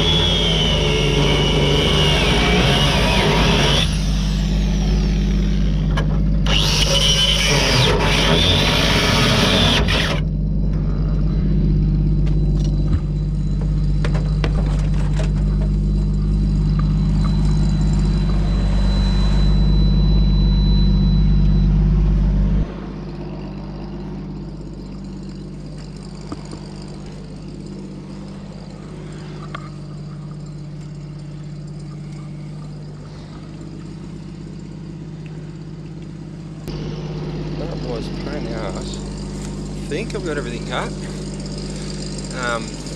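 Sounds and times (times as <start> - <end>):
angle grinder cutting steel: 0.0 - 10.3, 36.7 - 42.9
low mechanical hum: 0.0 - 42.9.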